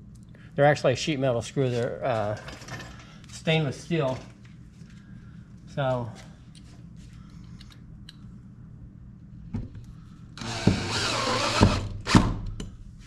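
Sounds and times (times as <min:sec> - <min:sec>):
power drill running: 0:10.4 - 0:12.3.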